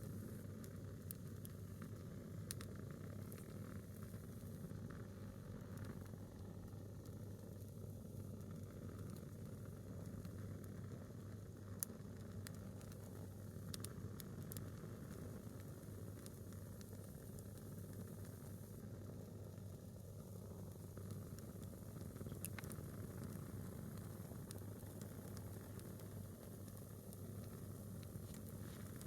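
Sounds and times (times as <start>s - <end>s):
firewood crackling: 19.8s - 29.0s.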